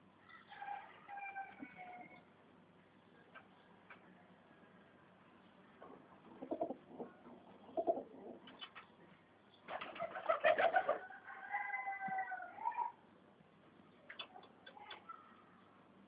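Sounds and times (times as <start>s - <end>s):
pigeons cooing: 6.3s - 8.5s.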